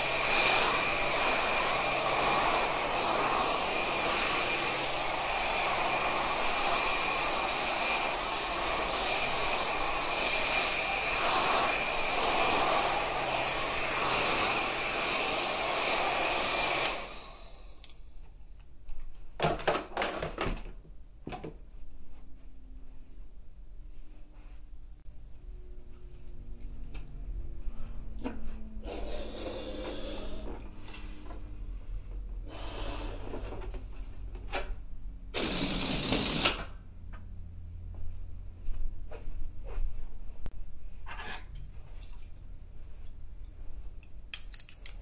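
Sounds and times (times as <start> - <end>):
loud rushing blower noise: 0.0 - 17.8.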